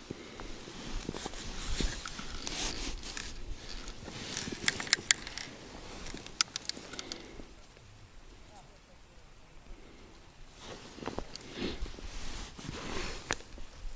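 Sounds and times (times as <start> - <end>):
rustling and scraping: 0.0 - 7.8, 10.5 - 13.9
sharp clicks: 3.1 - 7.8.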